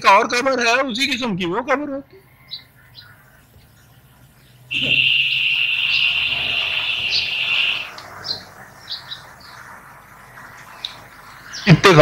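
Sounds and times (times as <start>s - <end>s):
small bird trilling and chirping: 2.4s - 3.2s, 4.7s - 9.6s.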